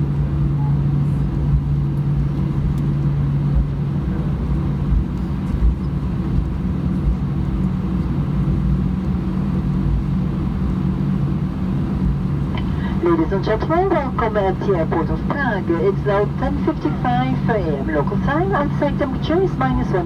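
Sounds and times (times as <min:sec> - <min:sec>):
jet engines humming: 0:11.3 - 0:20.0.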